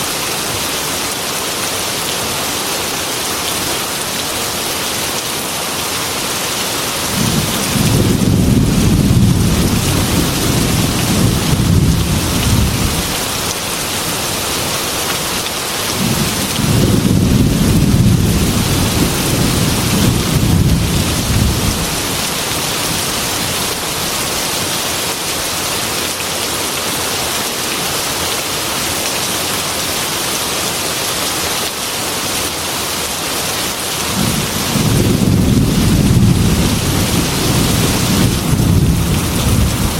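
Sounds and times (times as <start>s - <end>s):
heavy rain on a window: 0.0s - 39.9s
rolling thunder: 7.1s - 13.2s, 16.0s - 22.2s, 34.2s - 39.9s.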